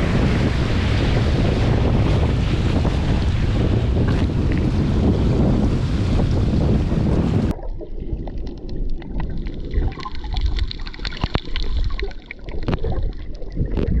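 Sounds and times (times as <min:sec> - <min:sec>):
low rumble: 0:00.0 - 0:11.9
water sloshing and gurgling: 0:00.0 - 0:14.0
small clicks and ticks: 0:08.3 - 0:14.0.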